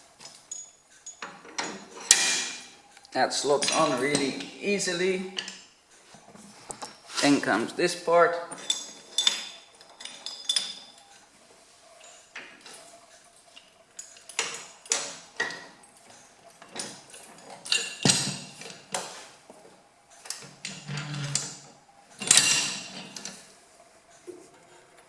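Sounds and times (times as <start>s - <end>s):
metal clanking on metal: 0.5s - 2.7s, 3.5s - 4.6s, 8.5s - 11.0s, 22.2s - 23.4s.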